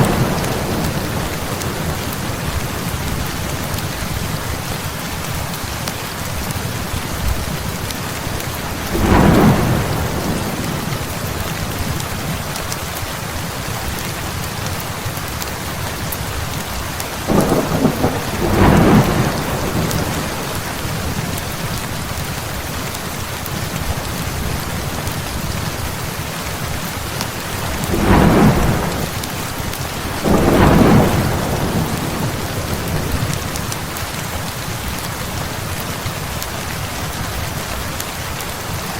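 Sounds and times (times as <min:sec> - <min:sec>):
thunder rumbling: 0:00.0 - 0:04.3, 0:07.1 - 0:12.1, 0:17.3 - 0:22.3, 0:26.8 - 0:34.0
heavy rain falling: 0:00.0 - 0:38.9.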